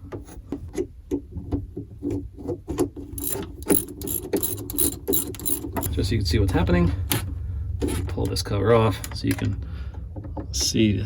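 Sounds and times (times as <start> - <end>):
ratchet wrench clicking: 3.2 - 5.9.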